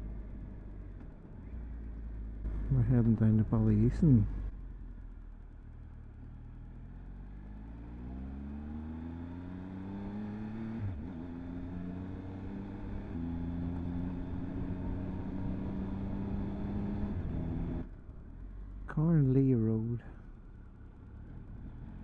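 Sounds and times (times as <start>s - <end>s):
motorcycle engine revving: 6.1s - 17.9s.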